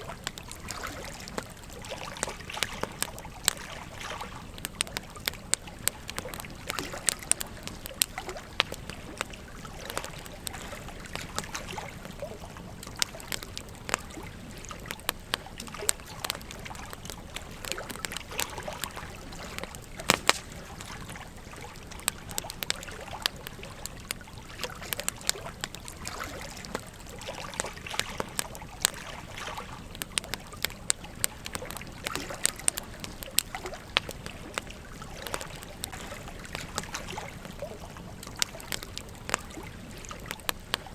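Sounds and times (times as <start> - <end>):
campfire crackling and popping: 0.0 - 40.9
gentle stream flowing: 0.0 - 40.9.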